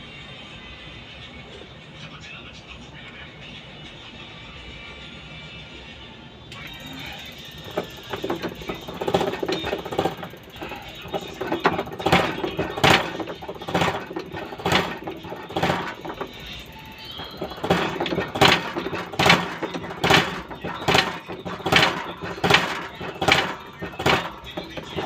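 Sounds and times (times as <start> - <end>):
sharp mechanical clicks: 6.6 - 25.0.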